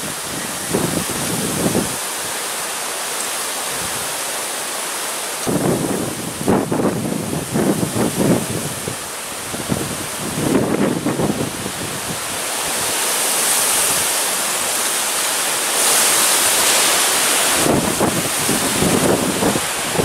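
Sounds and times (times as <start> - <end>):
wind buffeting microphone: 0.0 - 2.0, 5.4 - 13.0, 17.5 - 20.0
gusty storm wind rushing: 0.0 - 2.4, 5.4 - 14.2, 15.2 - 20.0.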